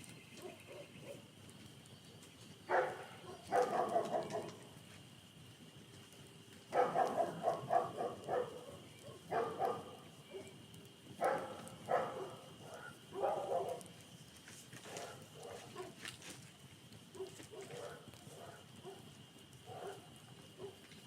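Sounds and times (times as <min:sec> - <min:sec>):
dog barking: 0:00.4 - 0:01.2, 0:02.7 - 0:04.6, 0:06.7 - 0:10.6, 0:11.2 - 0:13.9, 0:14.8 - 0:16.0, 0:17.1 - 0:20.8.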